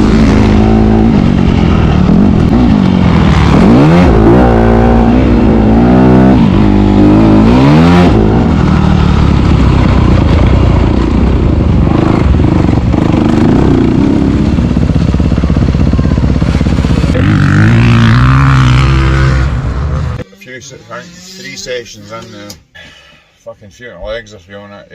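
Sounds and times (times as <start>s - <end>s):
motocross bike engine revving: 0.0s - 20.2s.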